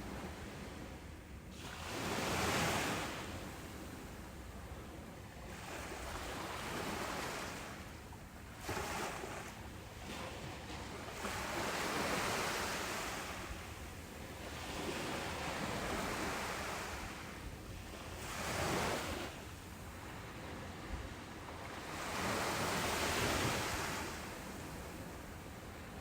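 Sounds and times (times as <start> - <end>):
ocean waves breaking: 8.5 - 25.8.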